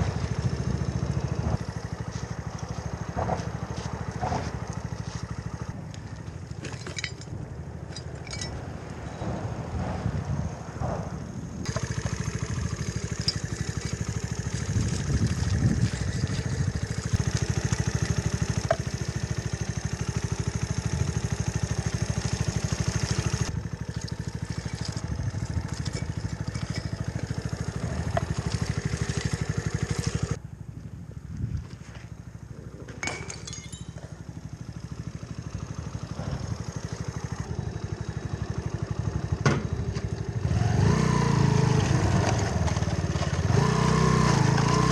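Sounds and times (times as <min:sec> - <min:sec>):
motorcycle engine running: 0:00.0 - 0:08.5, 0:11.4 - 0:44.9.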